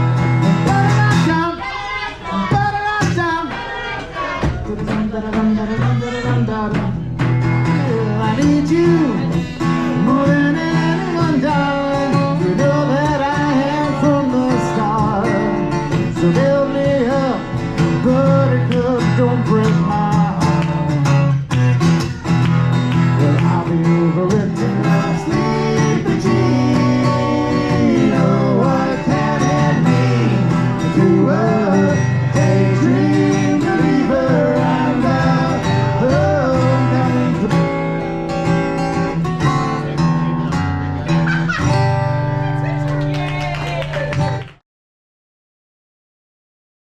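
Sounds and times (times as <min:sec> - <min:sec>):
bass line: 0:00.0 - 0:01.6, 0:04.4 - 0:42.9
guitar: 0:00.0 - 0:44.6
person singing: 0:10.0 - 0:17.4, 0:23.2 - 0:37.7.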